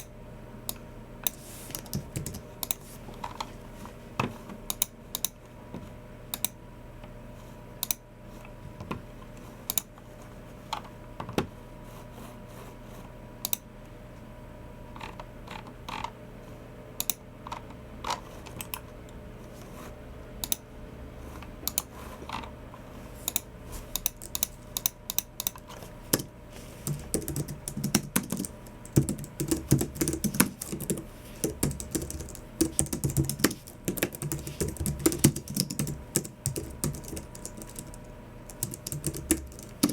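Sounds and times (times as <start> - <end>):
keyboard typing: 1.3 - 2.8, 23.3 - 39.9.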